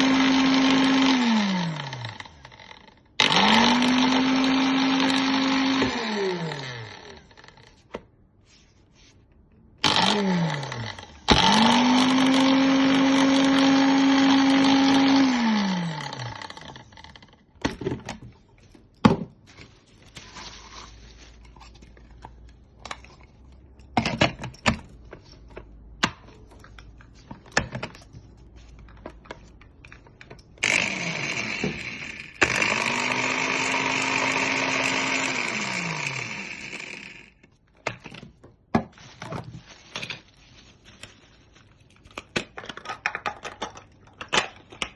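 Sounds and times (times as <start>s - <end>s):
blender motor running: 0.0s - 7.6s, 9.8s - 17.3s, 30.6s - 37.4s.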